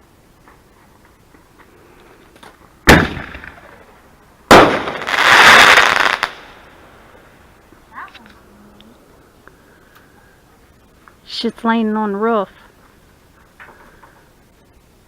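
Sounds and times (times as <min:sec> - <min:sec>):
firework bangs: 0:02.8 - 0:07.2
firework noisy rush: 0:02.8 - 0:07.7.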